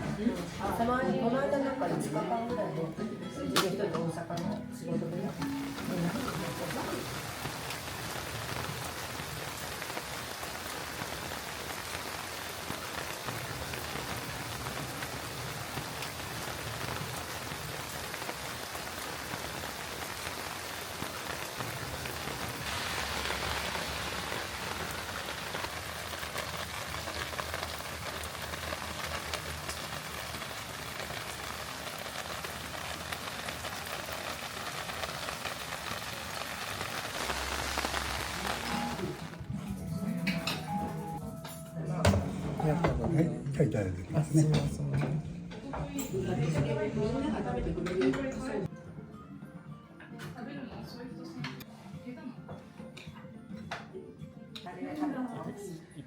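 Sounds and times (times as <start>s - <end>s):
rain on a hard surface: 5.4s - 39.5s.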